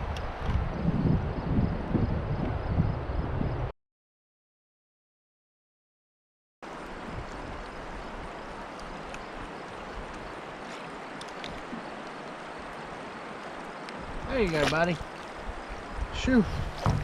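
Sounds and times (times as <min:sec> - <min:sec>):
river water rushing: 0:06.6 - 0:17.0.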